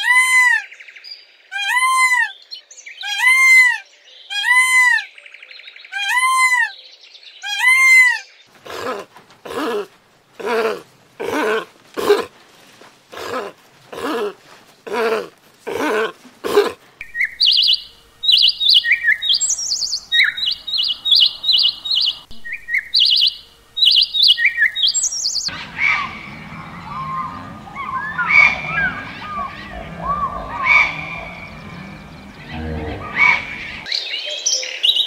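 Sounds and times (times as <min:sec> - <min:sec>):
birds calling: 0:00.0 - 0:35.0
outdoor background noise: 0:00.0 - 0:35.0
budgerigar chirping: 0:17.0 - 0:33.9
sea lion barking: 0:25.5 - 0:33.9.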